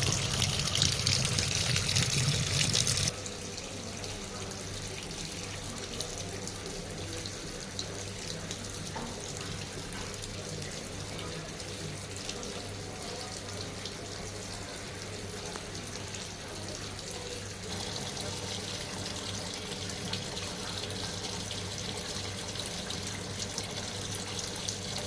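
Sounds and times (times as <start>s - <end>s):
water running into washing machine: 0.0s - 25.0s.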